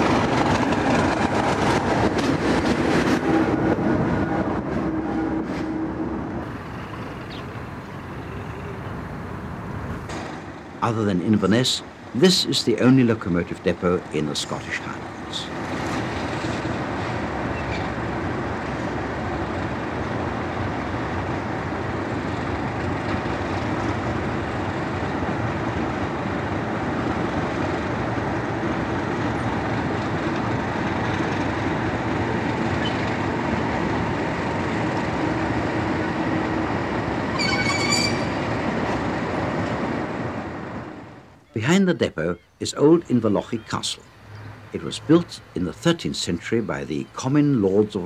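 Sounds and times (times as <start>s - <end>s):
train rumbling on track: 0.0s - 41.7s
high wheel squeal: 37.3s - 38.5s.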